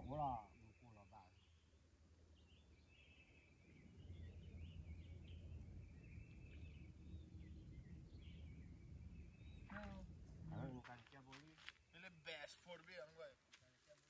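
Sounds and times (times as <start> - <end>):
songbirds chirping: 0.0 - 14.0
low rumble: 3.8 - 10.8.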